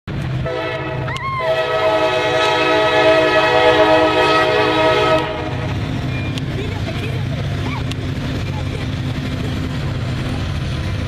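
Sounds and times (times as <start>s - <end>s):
train rumbling past: 0.1s - 11.0s
train air horn blast: 0.4s - 5.7s.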